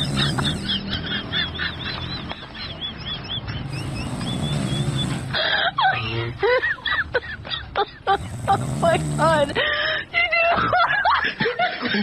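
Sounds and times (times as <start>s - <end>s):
low grunting: 0.0s - 1.1s, 3.7s - 6.4s, 8.1s - 9.6s.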